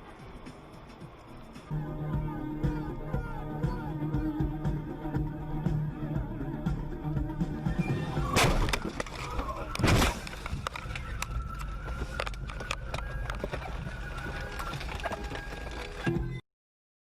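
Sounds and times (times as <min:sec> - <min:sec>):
vehicle rumble: 0:00.0 - 0:16.4.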